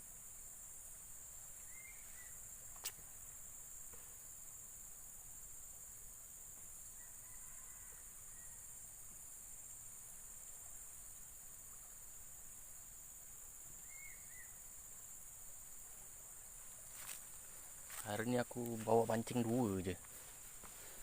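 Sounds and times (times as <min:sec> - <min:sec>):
insects chorus: 0:00.0 - 0:21.0
faint chirp: 0:01.5 - 0:03.0, 0:13.7 - 0:14.8.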